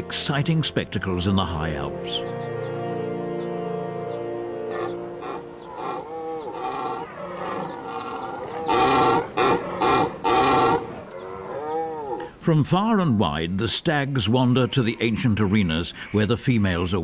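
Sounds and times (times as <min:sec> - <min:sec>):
held music notes: 0:00.0 - 0:12.3
deer stags roaring: 0:04.7 - 0:12.3.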